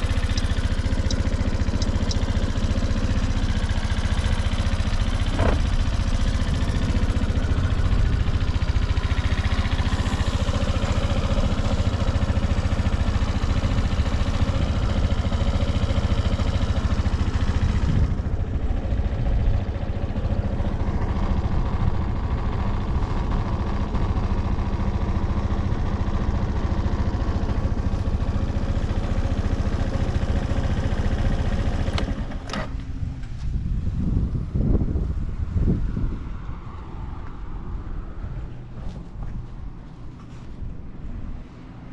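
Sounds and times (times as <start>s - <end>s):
scooter engine idling: 0.0s - 35.6s
click: 0.3s - 2.3s.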